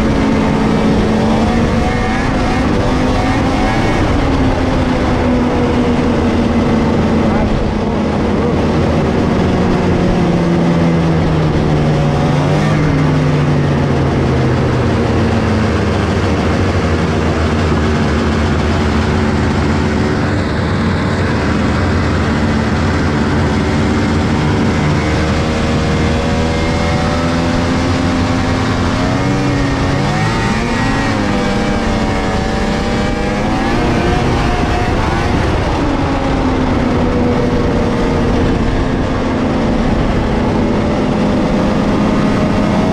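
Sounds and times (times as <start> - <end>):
snowmobile engine revving: 0.0 - 42.9.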